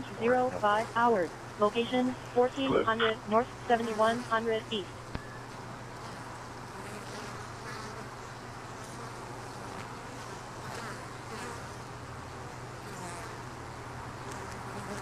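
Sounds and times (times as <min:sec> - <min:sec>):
bees buzzing: 0:00.0 - 0:05.0.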